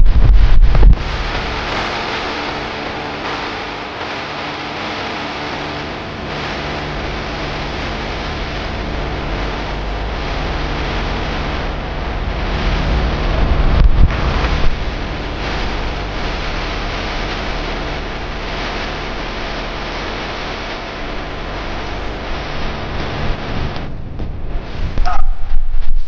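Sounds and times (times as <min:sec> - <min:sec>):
wind rushing on microphone: 0:00.0 - 0:01.5, 0:12.5 - 0:15.6.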